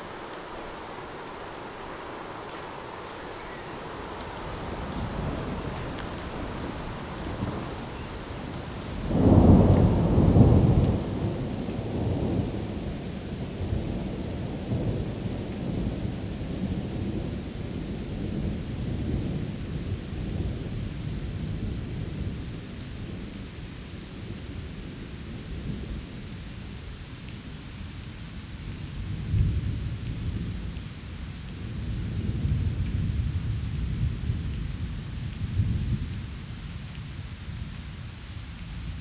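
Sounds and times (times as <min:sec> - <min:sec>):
thunder rolling: 0:00.0 - 0:12.7
steady rain: 0:00.0 - 0:39.0.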